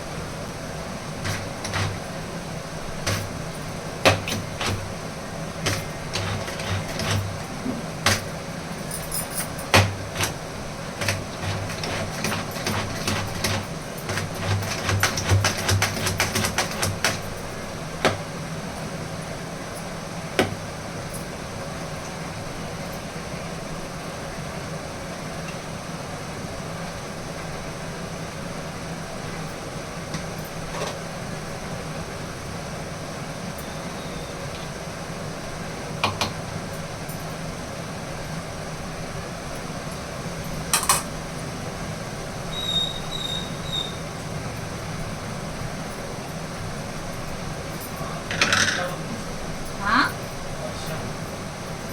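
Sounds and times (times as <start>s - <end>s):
sharp clicks and knocks: 1.2s - 2.2s, 3.0s - 3.4s, 4.0s - 4.9s, 5.6s - 10.4s, 11.0s - 17.4s, 40.7s - 41.1s
faint high chirps: 42.5s - 44.1s.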